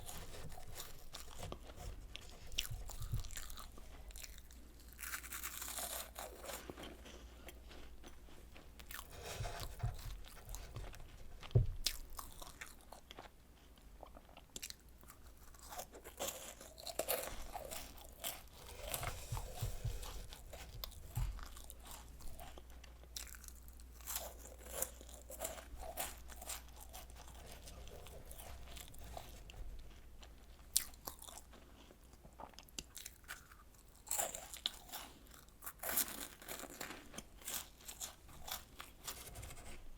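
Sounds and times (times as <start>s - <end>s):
crunching and chewing cookies: 0.0s - 39.9s
dull thuds: 9.2s - 12.0s, 18.5s - 22.0s.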